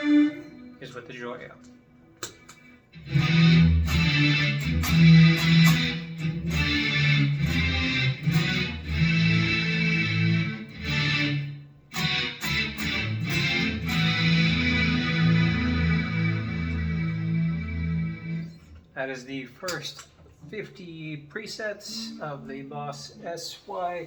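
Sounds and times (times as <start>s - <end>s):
synth-pad guitar chords: 0.0s - 1.7s, 2.3s - 18.8s.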